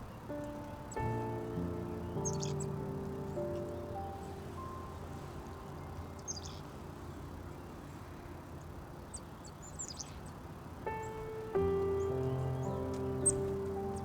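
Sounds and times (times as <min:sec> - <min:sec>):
small birds chirping: 0:00.0 - 0:14.0
background music: 0:00.3 - 0:06.7, 0:10.9 - 0:14.0.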